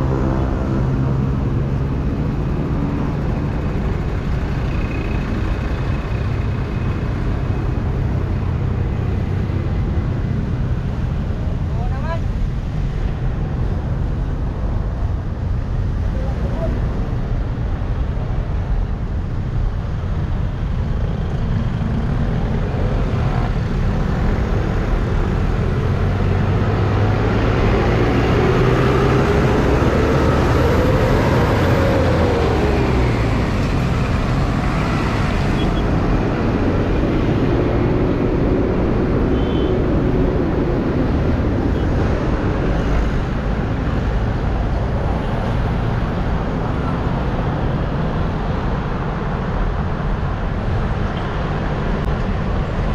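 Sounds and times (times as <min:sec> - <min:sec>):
road traffic rumble: 0:00.0 - 0:52.9
passing vehicle engine: 0:20.3 - 0:52.9.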